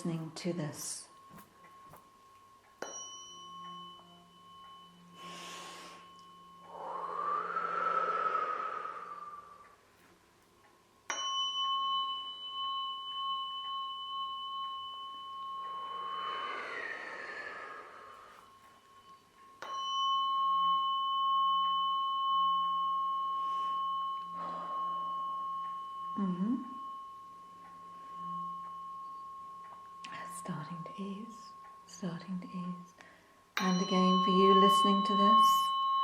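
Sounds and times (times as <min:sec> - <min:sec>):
tuning fork ringing: 0:00.0 - 0:36.0
soft breathy swells: 0:05.2 - 0:09.8, 0:15.7 - 0:19.1, 0:23.2 - 0:26.9.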